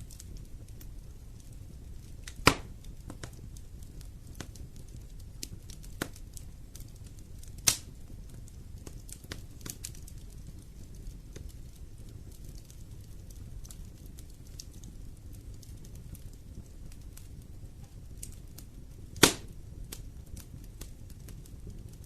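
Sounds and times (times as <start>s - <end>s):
wood fire crackling: 0.0s - 22.0s
sharp loud fire pops: 2.4s - 2.7s, 19.2s - 19.6s.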